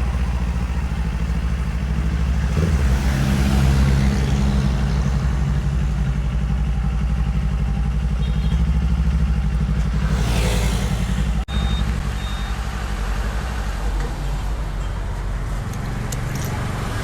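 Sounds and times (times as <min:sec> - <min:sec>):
motorcycle engine running: 0:00.0 - 0:12.0
short high beeps: 0:11.5 - 0:12.6.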